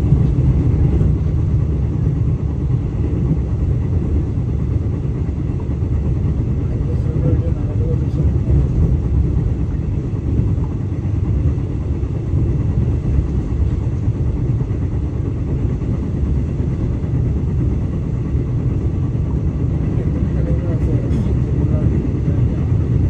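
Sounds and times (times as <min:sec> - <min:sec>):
train rumbling from inside coach: 0:00.0 - 0:23.0.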